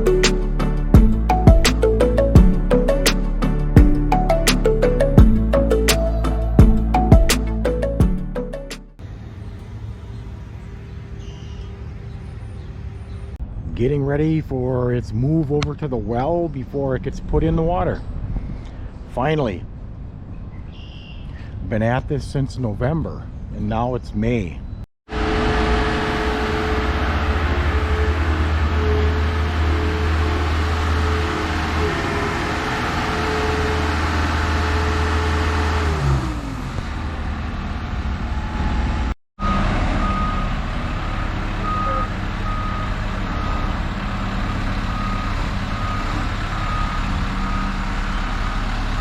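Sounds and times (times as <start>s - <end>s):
travel lift engine whining: 9.0s - 13.4s, 25.1s - 49.0s
motion alarm beeps: 41.6s - 43.7s.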